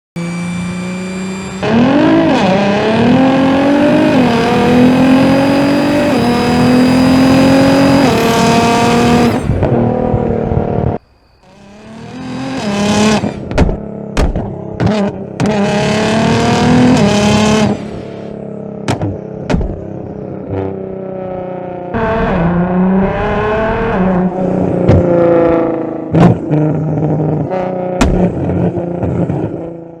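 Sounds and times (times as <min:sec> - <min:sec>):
car engine revving: 0:00.2 - 0:30.0.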